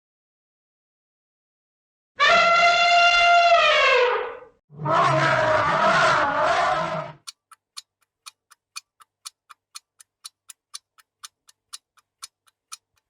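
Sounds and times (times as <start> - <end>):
clock ticking: 7.2 - 13.0.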